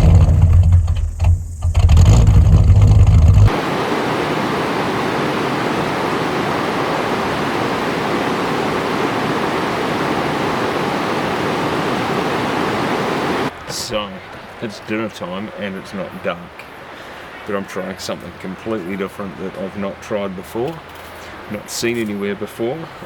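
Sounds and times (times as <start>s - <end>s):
engine rumbling: 0.0s - 3.8s
river water flowing: 3.5s - 23.0s.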